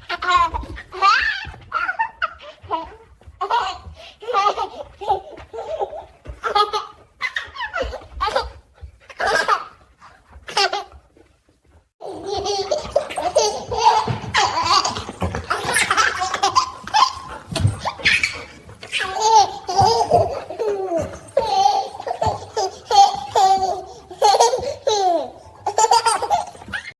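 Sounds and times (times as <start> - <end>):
baby laughing: 12.0 - 26.9.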